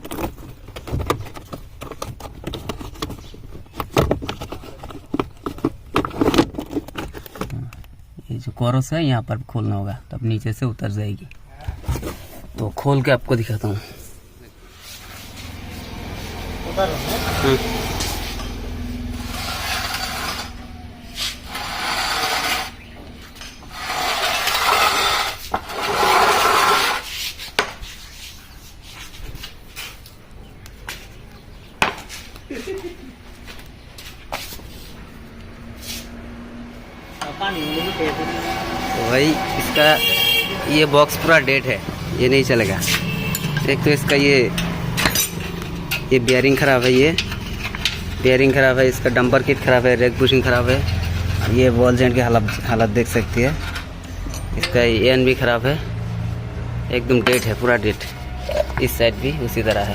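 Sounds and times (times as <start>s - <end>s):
steering rack rasping and scraping: 17.0s - 27.5s
metallic knocks and clatter of tools: 42.8s - 48.2s, 53.5s - 54.8s, 57.2s - 57.7s.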